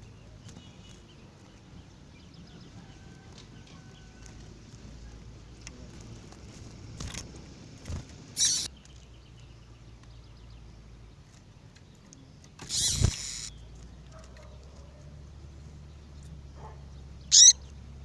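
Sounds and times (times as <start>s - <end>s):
small bird calling: 8.3s - 10.4s, 11.3s - 15.1s, 16.2s - 17.8s.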